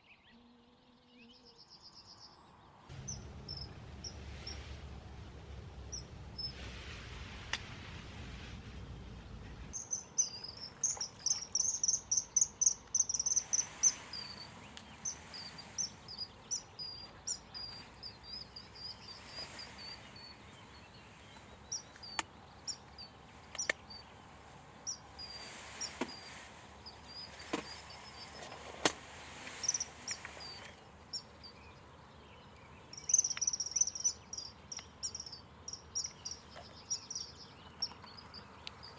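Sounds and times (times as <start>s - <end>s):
kingfishers piping calls: 3.0s - 4.6s, 9.8s - 24.1s, 24.8s - 28.6s, 29.2s - 31.6s, 32.9s - 38.9s
sharp clicks: 23.5s - 24.0s.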